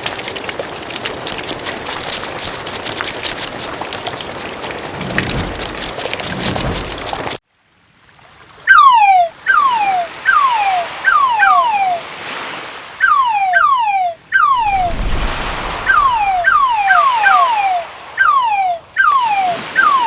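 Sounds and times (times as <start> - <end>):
surf washing: 4.9 - 7.3, 9.1 - 20.0
falling whistle-like chirps: 8.7 - 12.1, 13.0 - 20.0.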